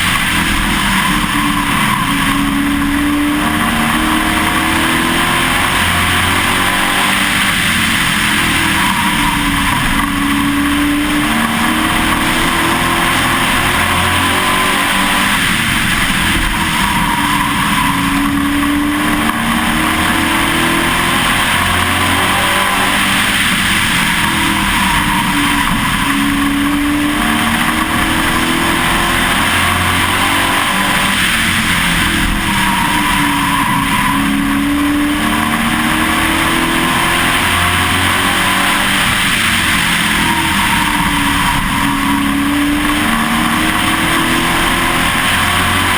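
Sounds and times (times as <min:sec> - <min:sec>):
race truck engine revving: 0:00.0 - 0:45.9.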